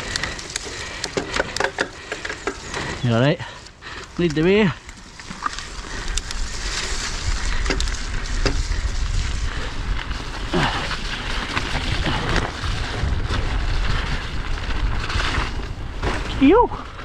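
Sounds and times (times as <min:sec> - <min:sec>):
tyre and trail noise: 0:00.0 - 0:17.0
wind rumble on microphone: 0:05.5 - 0:17.0.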